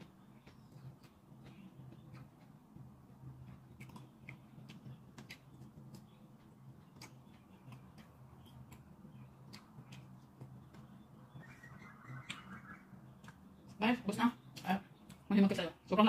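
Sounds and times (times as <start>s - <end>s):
chewing crispy food: 0.0s - 12.3s
low steady hum: 0.0s - 16.0s.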